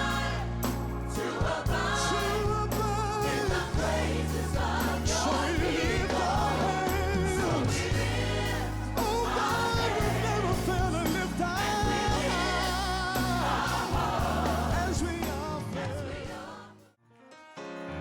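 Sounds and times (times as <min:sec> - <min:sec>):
worship band with singers: 0:00.0 - 0:17.0.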